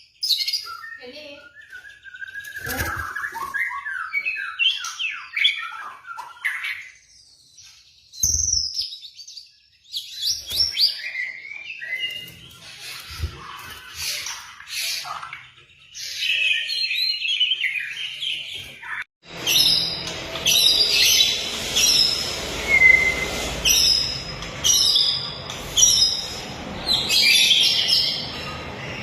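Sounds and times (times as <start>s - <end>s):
songbird song recording: 0.0s - 29.0s
short high bird phrases: 1.0s - 1.5s.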